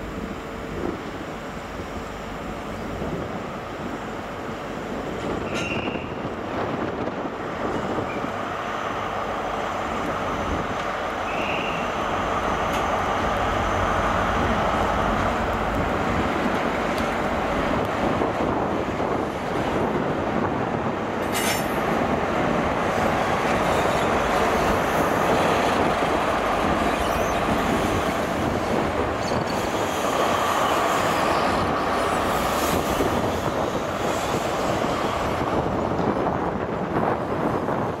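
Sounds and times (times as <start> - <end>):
diesel train running slowly: 0.0 - 38.0
wheel squeals: 26.8 - 28.1.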